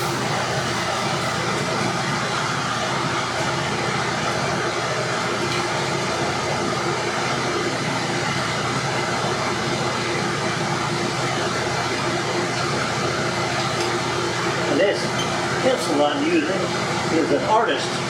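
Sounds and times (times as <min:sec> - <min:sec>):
forge air blast rushing: 0:00.0 - 0:05.4.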